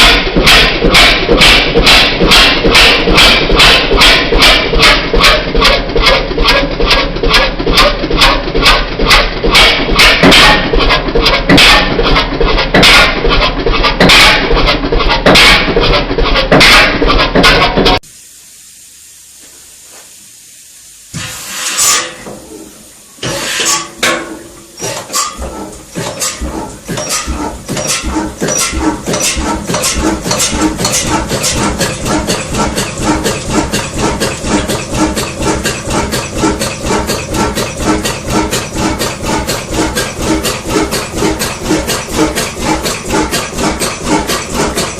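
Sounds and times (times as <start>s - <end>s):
diesel engine rhythmic knock: 0.0s - 18.0s, 24.0s - 44.9s
diesel engine starting: 0.0s - 18.0s, 24.1s - 44.9s
short hiss: 18.1s - 22.2s.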